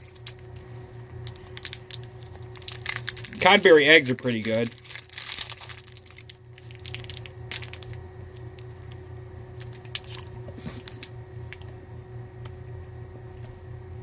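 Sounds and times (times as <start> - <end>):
steady low hum: 0.0 - 14.0
wrapper clicks: 1.3 - 8.9.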